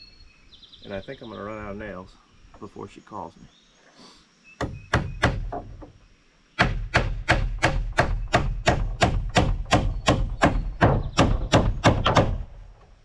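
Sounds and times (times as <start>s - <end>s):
hammer driving a nail into wood: 4.6s - 5.8s, 6.6s - 12.5s.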